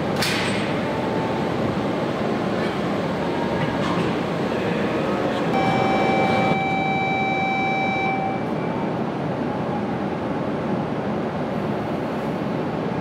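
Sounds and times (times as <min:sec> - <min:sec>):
train running noise: 0:00.0 - 0:13.0
long electronic tone: 0:05.5 - 0:09.0.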